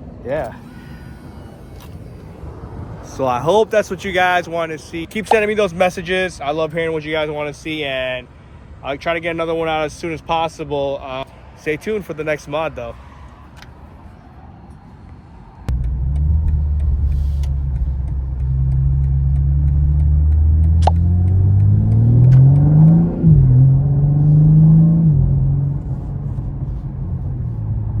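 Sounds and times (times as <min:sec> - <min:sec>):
car engine accelerating: 0:15.7 - 0:28.0.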